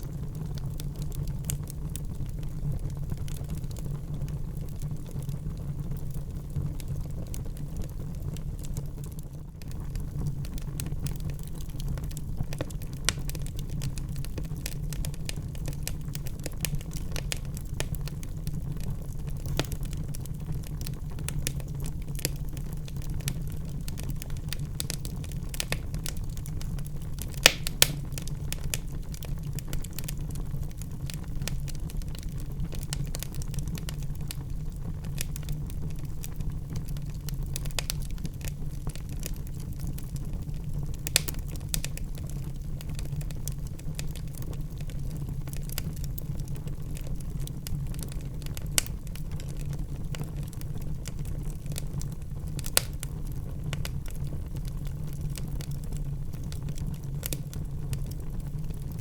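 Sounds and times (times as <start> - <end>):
fire crackling: 0.0 - 59.0
wood fire burning: 0.0 - 59.0
loud fire pops: 9.9 - 39.9, 40.5 - 46.0.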